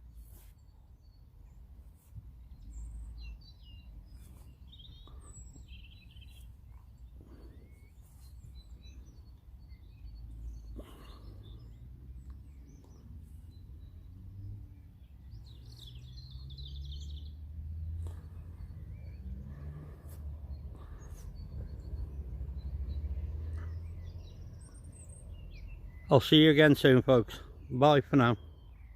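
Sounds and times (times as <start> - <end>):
small birds chirping: 0.0 - 28.9
low outdoor rumble: 16.4 - 25.8.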